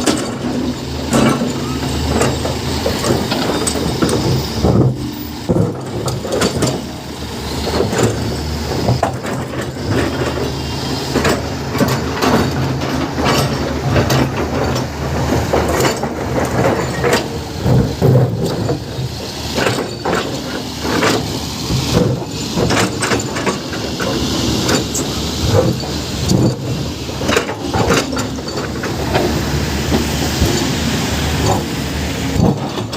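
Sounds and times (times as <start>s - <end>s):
knocks and rattles: 0.0s - 7.0s
heavy diesel machinery running: 0.0s - 32.9s.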